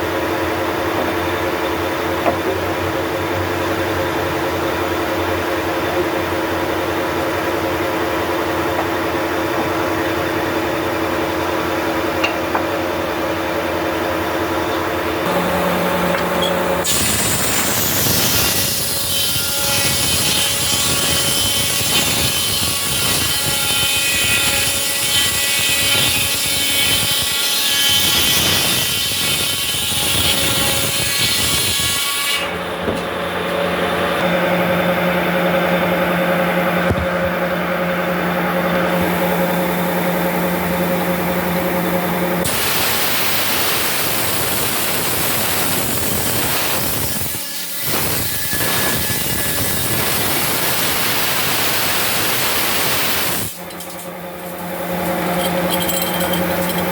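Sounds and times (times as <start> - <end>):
machine humming: 0.0 - 21.6, 49.6 - 56.9
saw cutting through wood: 15.2 - 56.9.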